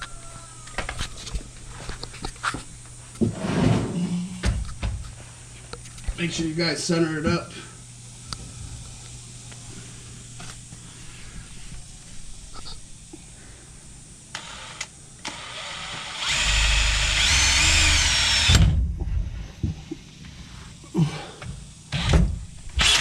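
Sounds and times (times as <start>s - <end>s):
power drill with hole saw: 14.4s - 18.6s, 21.9s - 22.2s, 22.8s - 23.0s.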